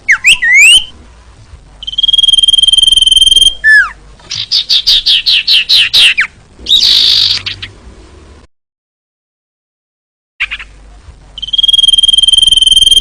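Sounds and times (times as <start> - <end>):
bird calling with whistles: 0.1 - 0.9, 1.8 - 7.7, 11.4 - 13.0.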